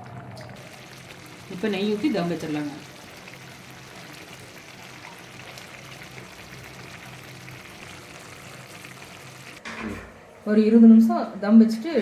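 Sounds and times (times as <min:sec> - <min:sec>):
rice simmering and sizzling in pot: 0:00.6 - 0:09.6.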